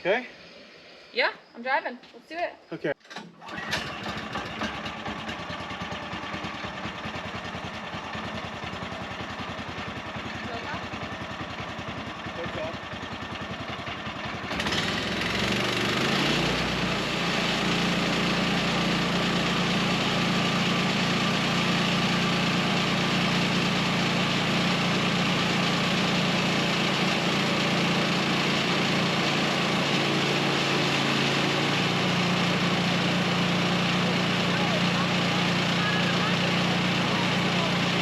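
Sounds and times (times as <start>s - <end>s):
small gasoline engine running: 3.2s - 38.0s.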